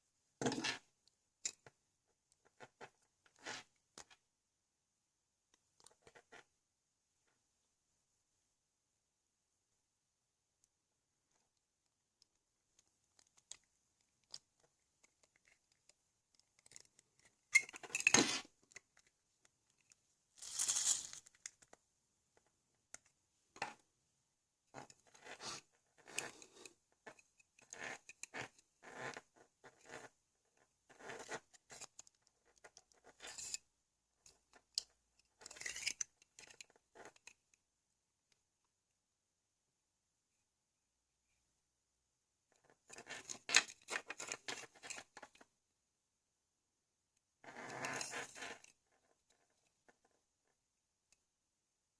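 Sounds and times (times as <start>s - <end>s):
plastic parts clicking and scraping: 12.2s - 21.8s, 24.8s - 30.1s, 31.2s - 33.6s, 34.2s - 37.5s, 42.8s - 45.5s.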